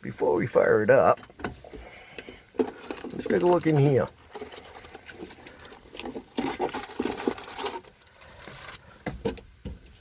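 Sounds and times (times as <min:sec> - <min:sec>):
things being handled: 0:01.1 - 0:10.0
papers rustling: 0:01.6 - 0:10.0.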